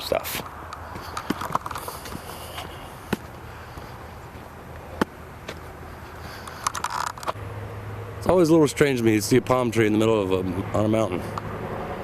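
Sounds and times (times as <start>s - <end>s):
faint background noise: 0.0s - 11.6s.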